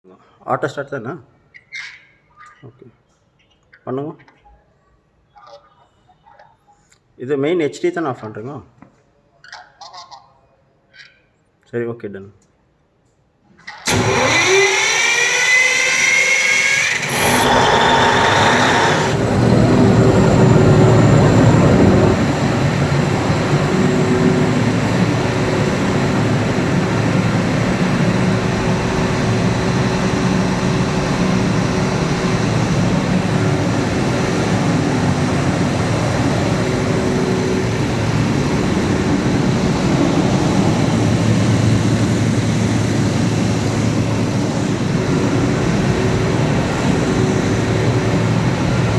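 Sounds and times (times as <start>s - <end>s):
diesel generator starting and running: 13.8s - 48.9s.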